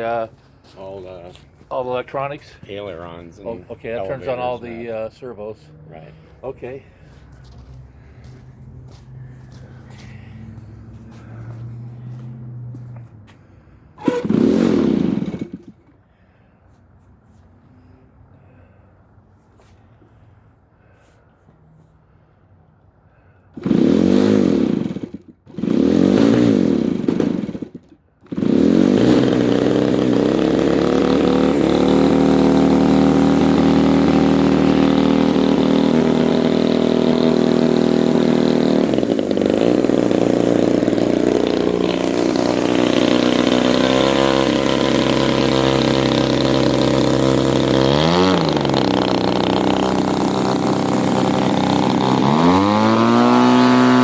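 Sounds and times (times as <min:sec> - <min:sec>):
model airplane engine running: 0:26.0 - 0:54.0.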